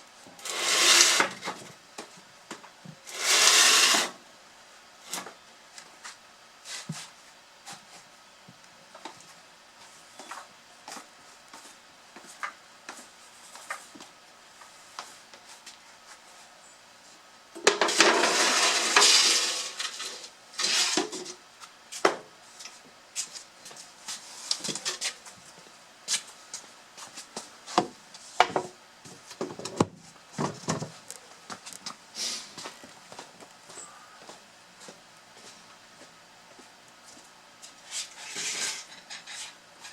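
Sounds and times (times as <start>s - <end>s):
firewood rattling down a pipe chute: 0.4s - 1.7s, 3.0s - 4.2s, 17.6s - 21.4s.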